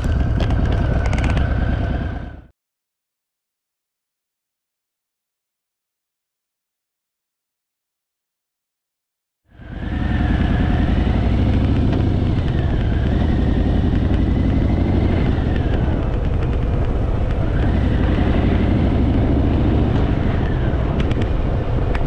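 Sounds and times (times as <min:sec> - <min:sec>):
motorcycle engine running: 0:00.0 - 0:02.5, 0:09.6 - 0:22.0.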